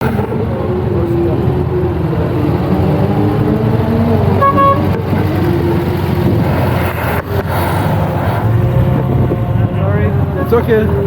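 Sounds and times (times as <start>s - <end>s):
car engines rumbling: 0.0s - 11.0s
car horn toot: 4.4s - 5.1s.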